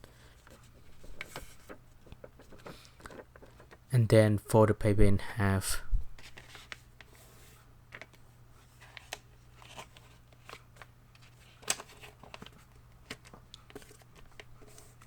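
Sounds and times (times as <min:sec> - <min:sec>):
paper rustling and crinkling: 0:00.3 - 0:03.8, 0:06.2 - 0:07.2, 0:07.9 - 0:15.0.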